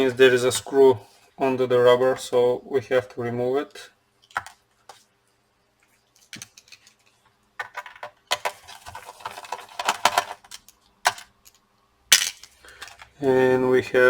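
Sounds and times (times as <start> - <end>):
metal tools scraping plastic: 8.3 - 11.3.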